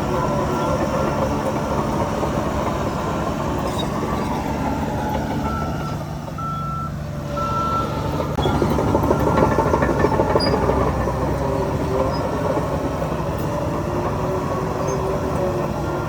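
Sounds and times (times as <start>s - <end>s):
heavy diesel engine running: 0.0s - 16.0s
back-up alarm beeping: 5.4s - 8.0s.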